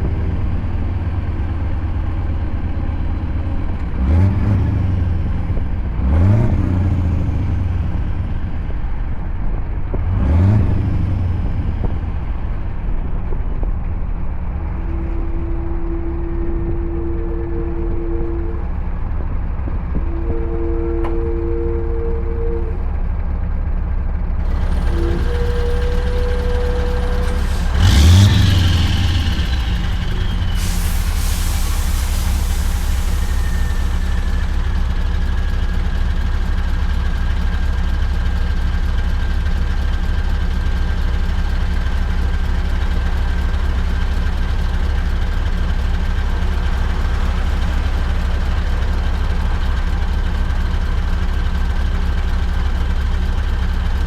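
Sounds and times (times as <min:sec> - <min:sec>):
truck engine droning: 0:00.0 - 0:54.0
compressed air hiss: 0:29.4 - 0:34.6.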